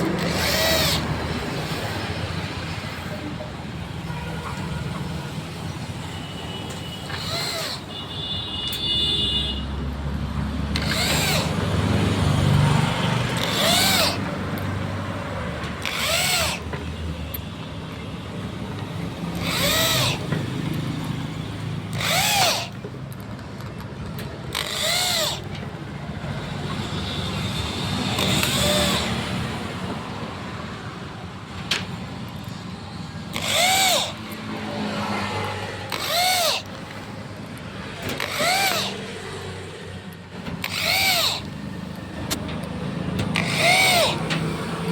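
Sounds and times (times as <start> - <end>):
electric drill bursts: 0.0 - 3.2, 5.2 - 9.0, 10.7 - 14.6, 15.8 - 16.7, 19.0 - 22.8, 24.5 - 25.6, 26.5 - 29.9, 32.5 - 39.9, 40.6 - 42.4, 43.3 - 44.9.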